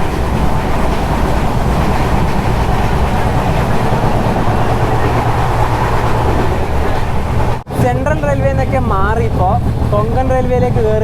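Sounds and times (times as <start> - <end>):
passenger train rumble: 0.0 - 11.0.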